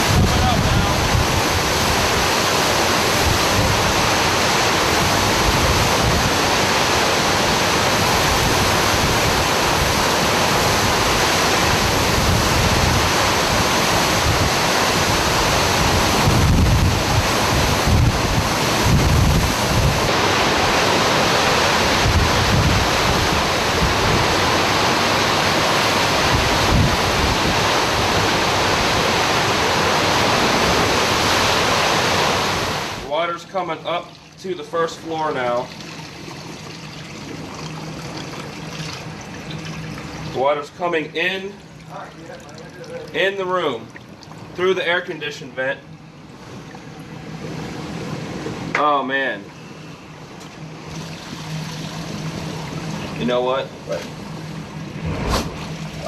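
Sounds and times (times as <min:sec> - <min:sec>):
wind gusts buffeting microphone: 0:00.0 - 0:06.8, 0:07.7 - 0:24.8, 0:25.6 - 0:31.8
strong wind blowing: 0:00.0 - 0:33.1.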